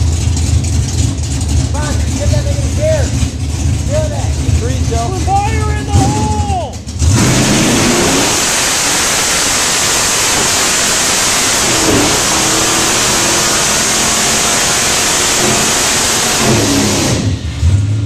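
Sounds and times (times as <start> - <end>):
car engine running hard: 0.0 - 18.0.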